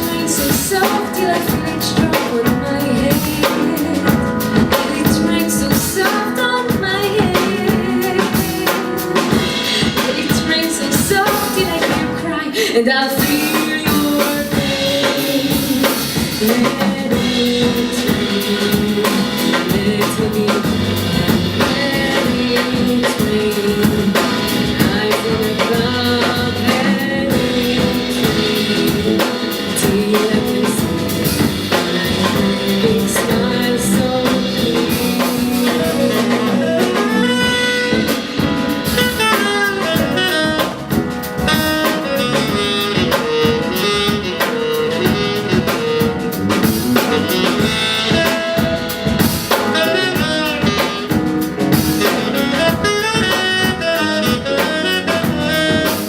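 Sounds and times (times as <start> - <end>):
jazz band playing: 0.0 - 56.0
tenor saxophone melody: 13.3 - 56.0.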